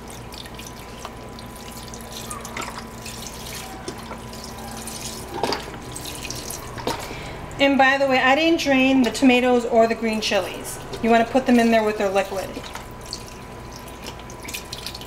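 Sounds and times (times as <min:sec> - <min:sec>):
liquid splashing: 0:00.0 - 0:07.4, 0:10.4 - 0:15.0
liquid pouring into a pot: 0:12.4 - 0:15.0.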